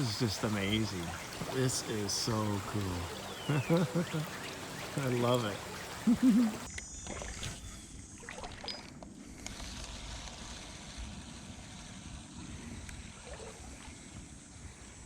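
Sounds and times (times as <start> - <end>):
creek water flowing: 0.0 - 6.7.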